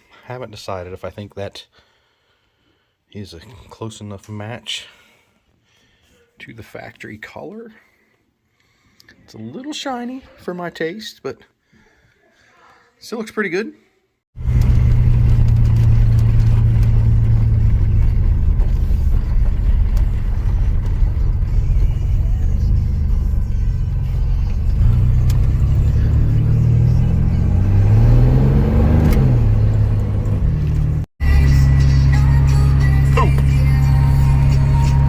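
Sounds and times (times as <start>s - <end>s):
engine running rough and revving: 14.4s - 35.0s.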